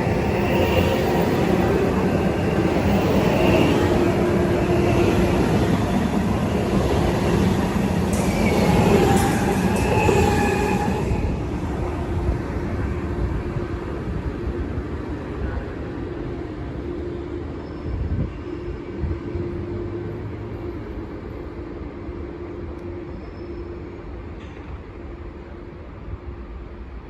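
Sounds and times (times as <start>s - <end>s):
train rumbling past: 0.0s - 27.0s.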